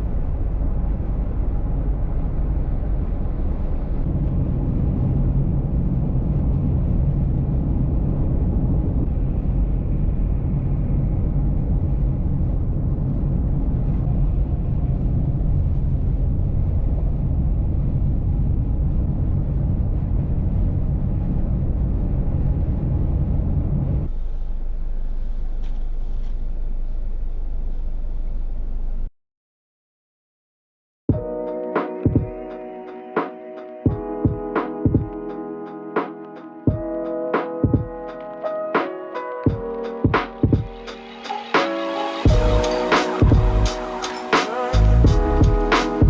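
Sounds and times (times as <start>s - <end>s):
car road and engine rumble: 0.0s - 29.1s, 42.3s - 44.2s
faint steady hum: 0.0s - 29.1s.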